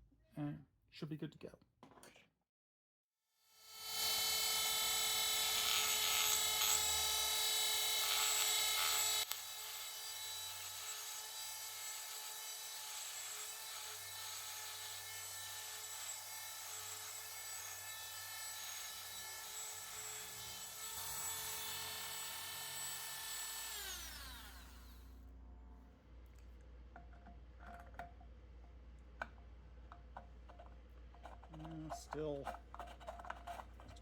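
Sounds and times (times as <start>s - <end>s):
rotary tool whining while grinding: 3.7s - 25.1s.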